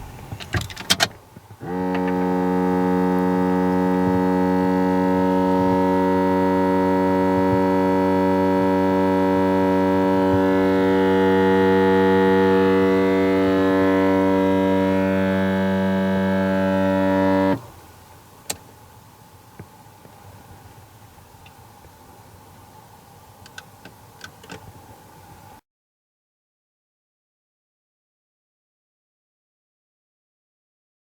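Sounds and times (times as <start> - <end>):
low buzzing drone: 1.6 - 18.1.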